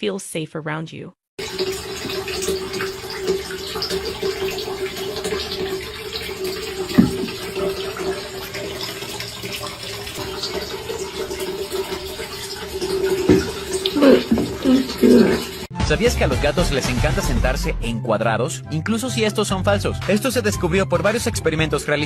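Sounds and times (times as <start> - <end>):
water running: 1.4 - 15.7
low thump: 7.0 - 7.4.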